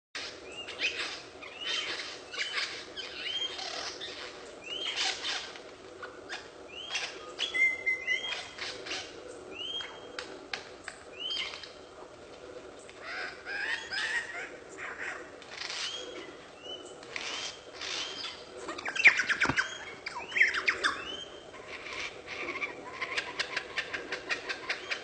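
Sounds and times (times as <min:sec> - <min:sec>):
bird chirping: 0:13.0 - 0:25.0.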